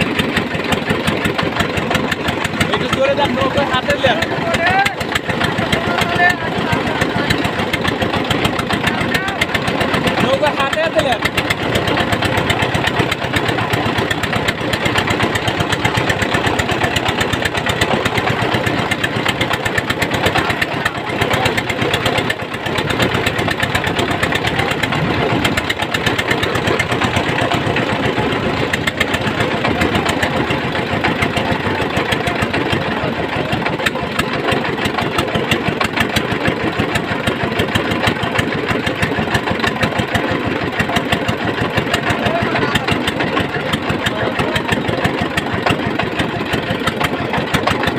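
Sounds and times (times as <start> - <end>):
motor boat engine running: 0.0 - 47.9.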